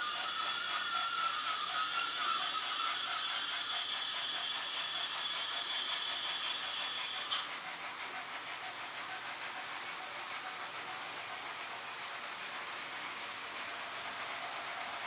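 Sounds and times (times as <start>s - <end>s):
squeal: 0.0s - 7.3s
thin high whine: 0.0s - 7.5s
model train wheels clicking: 0.0s - 15.0s.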